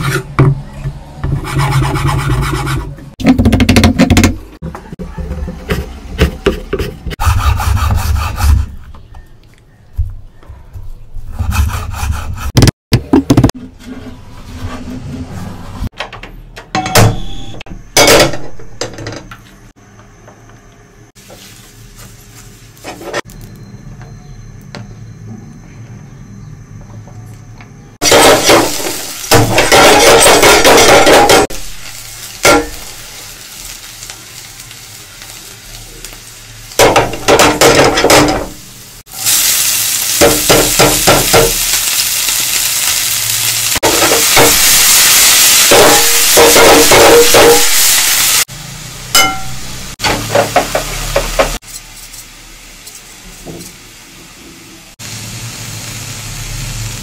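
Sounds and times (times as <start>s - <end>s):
food sizzling in hot oil: 28.0s - 57.0s.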